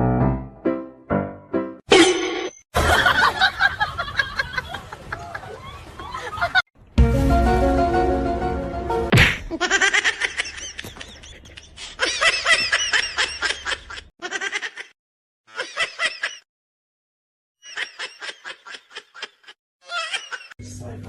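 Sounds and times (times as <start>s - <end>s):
high-pitched laughter: 9.5s - 16.4s, 17.6s - 20.6s.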